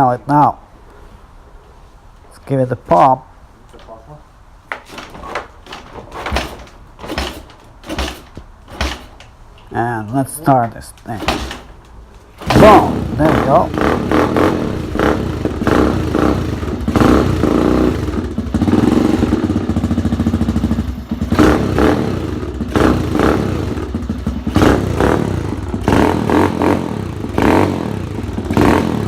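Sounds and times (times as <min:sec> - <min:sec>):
motorcycle engine revving: 0:11.1 - 0:29.0.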